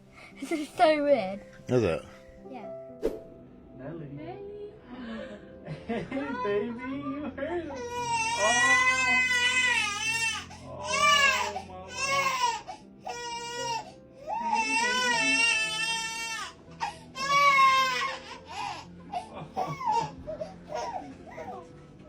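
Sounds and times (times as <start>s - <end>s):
baby crying: 7.7s - 21.6s.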